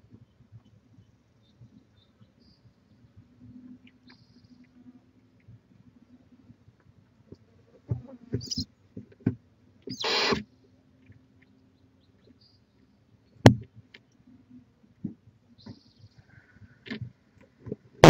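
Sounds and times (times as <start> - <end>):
brief high hiss: 9.9 - 10.4
owl hissing screech: 9.9 - 10.4.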